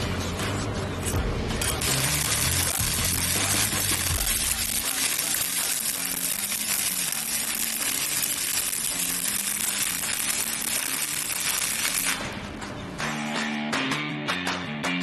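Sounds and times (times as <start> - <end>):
background music: 0.0 - 15.0
welding arc crackling: 1.6 - 12.4.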